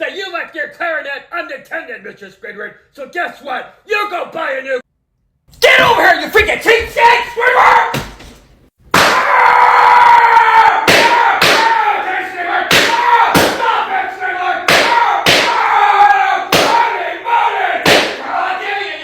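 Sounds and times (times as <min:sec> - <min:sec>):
person yelling: 0:05.6 - 0:08.1
sharp smacks: 0:12.7 - 0:13.6, 0:14.7 - 0:15.6, 0:16.5 - 0:16.8, 0:17.8 - 0:18.2.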